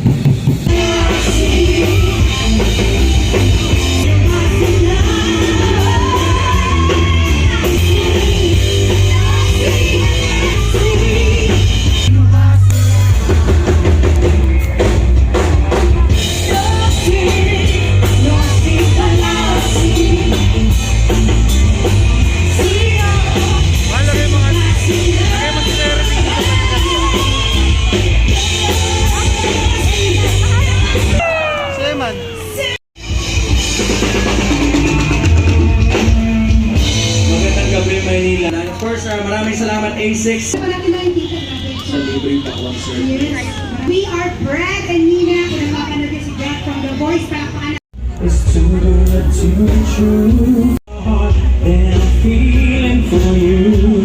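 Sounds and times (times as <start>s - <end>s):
rock song with singer and band: 0.0s - 54.0s.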